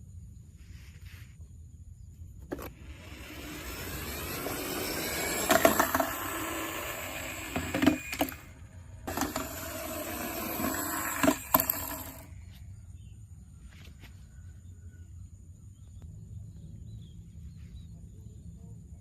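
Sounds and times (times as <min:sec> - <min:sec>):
toy car motor whirring: 0:02.4 - 0:12.3
toy car rattling and bumping: 0:02.4 - 0:12.3.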